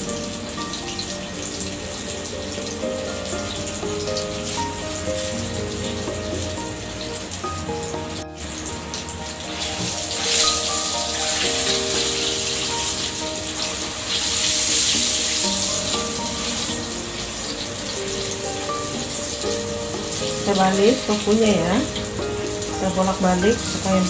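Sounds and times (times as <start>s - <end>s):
background music: 0.0s - 24.0s
tofu sizzling in hot oil: 0.0s - 24.0s.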